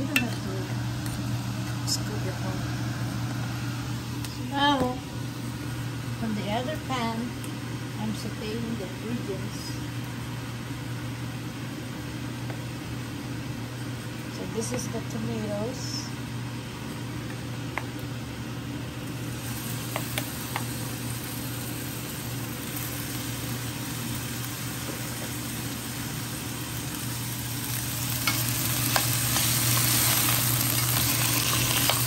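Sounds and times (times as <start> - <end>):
steady low hum: 0.0 - 32.0
tomatoes sizzling in hot oil: 18.9 - 32.0.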